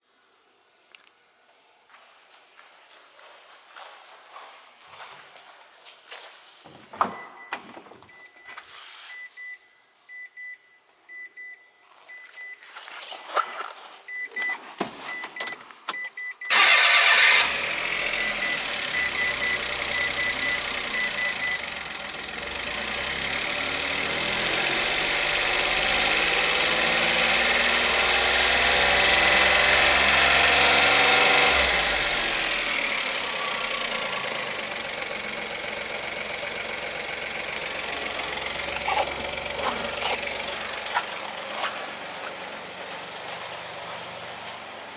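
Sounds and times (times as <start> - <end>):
car engine starting and idling: 15.9 - 44.9.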